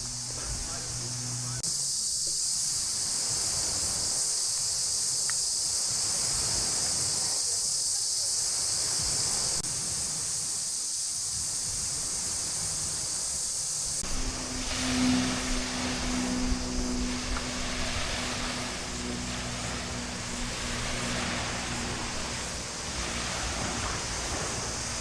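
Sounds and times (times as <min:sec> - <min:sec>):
wind rumble on microphone: 0:00.0 - 0:01.7, 0:11.2 - 0:25.0
high-pitched insect chorus: 0:00.0 - 0:25.0.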